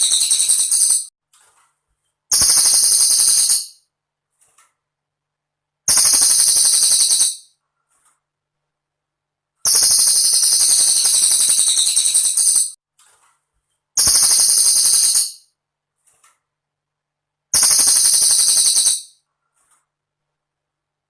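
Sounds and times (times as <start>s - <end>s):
bird song high-pitched trills: 0.0s - 1.1s, 2.3s - 3.8s, 6.0s - 7.5s, 9.7s - 12.8s, 14.0s - 15.5s, 17.6s - 19.2s.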